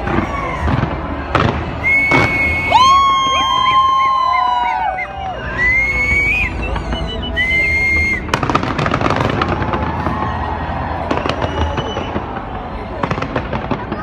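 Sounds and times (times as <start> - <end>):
fireworks crackling: 0.0 - 14.0
fireworks whistling: 1.8 - 10.4, 11.1 - 13.6.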